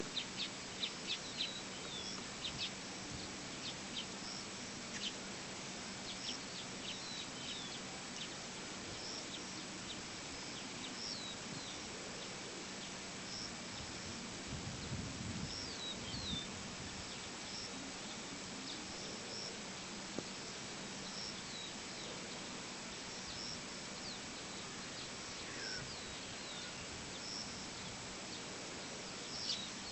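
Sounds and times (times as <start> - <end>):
background hiss: 0.0 - 29.9
faint low hum: 0.0 - 29.9
small birds chirping: 0.0 - 29.9.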